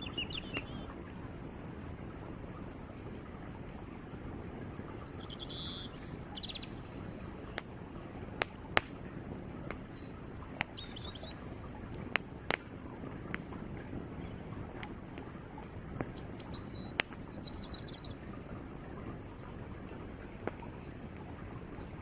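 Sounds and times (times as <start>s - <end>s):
bird chirping: 0.0s - 0.9s, 4.9s - 7.6s, 9.9s - 11.4s, 15.8s - 18.3s
campfire wood crackling: 0.0s - 22.0s
flowing creek: 0.0s - 22.0s
sharp pops of fire: 0.4s - 4.0s, 6.3s - 21.9s.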